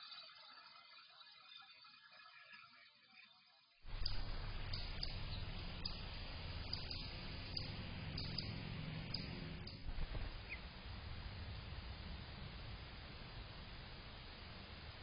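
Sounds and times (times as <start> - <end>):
faint clicks: 3.9 - 10.7
bird chirp: 3.9 - 15.0
low outdoor rumble: 3.9 - 15.0.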